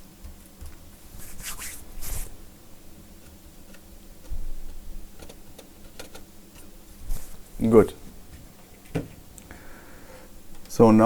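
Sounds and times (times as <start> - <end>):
rustling scrapes: 1.0 - 2.4, 7.0 - 7.6.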